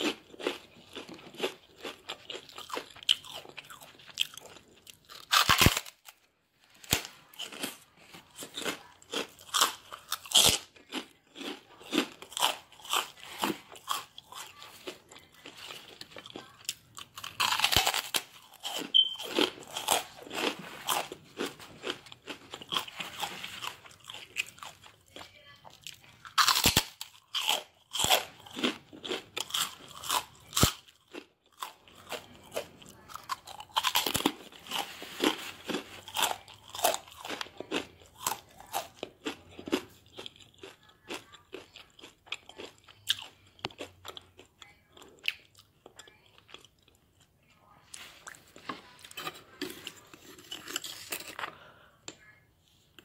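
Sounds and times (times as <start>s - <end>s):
crunchy chip bites: 0.0s - 6.2s, 6.8s - 14.6s, 15.4s - 25.0s, 26.2s - 44.5s
chewing crunches: 0.0s - 47.3s, 47.9s - 51.8s.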